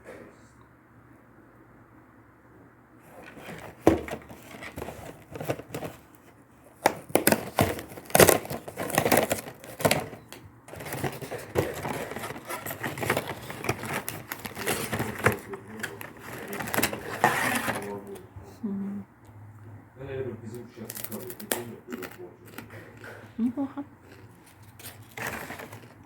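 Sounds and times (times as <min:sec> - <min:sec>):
wrapper crinkling and tearing: 0:06.8 - 0:18.2, 0:20.8 - 0:22.6, 0:24.1 - 0:26.0.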